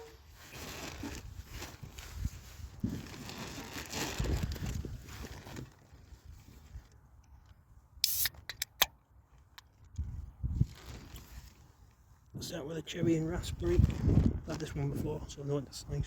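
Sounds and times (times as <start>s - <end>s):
rustling handling noise: 0.0s - 8.2s, 9.1s - 12.3s
brief hiss: 8.0s - 8.4s
sharp clicks: 8.0s - 9.0s.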